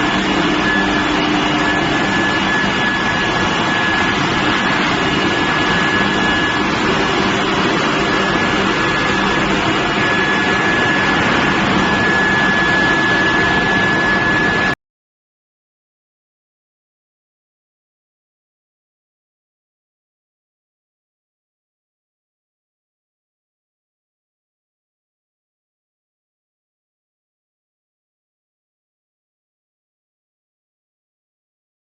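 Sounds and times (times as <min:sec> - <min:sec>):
constant high whine: 0:00.0 - 0:14.8
loud industrial din: 0:00.0 - 0:14.8.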